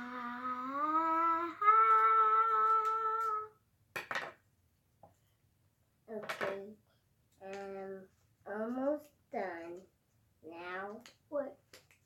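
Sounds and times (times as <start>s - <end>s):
child singing: 0.0s - 3.6s.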